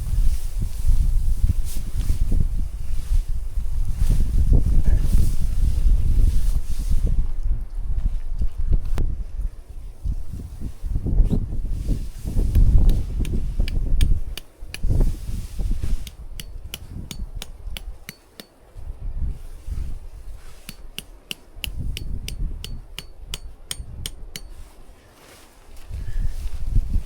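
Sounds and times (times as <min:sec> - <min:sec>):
hammering with metallic ring: 0:16.4 - 0:18.6, 0:20.7 - 0:24.7.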